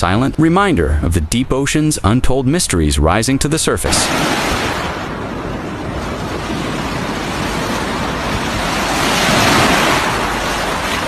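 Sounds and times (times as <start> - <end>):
ocean surf washing up beach: 3.9 - 11.0.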